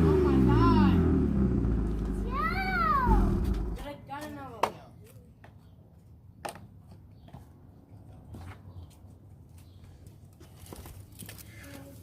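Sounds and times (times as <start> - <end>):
car engine idling: 0.0 - 3.9.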